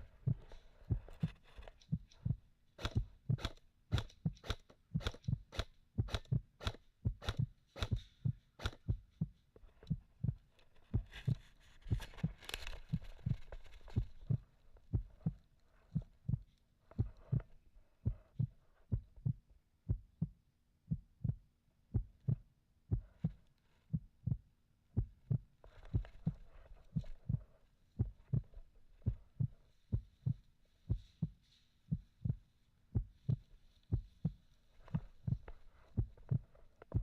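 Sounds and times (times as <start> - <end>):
dull low thumps: 4.1 - 37.0
faint rustling: 9.3 - 19.0, 25.6 - 37.0.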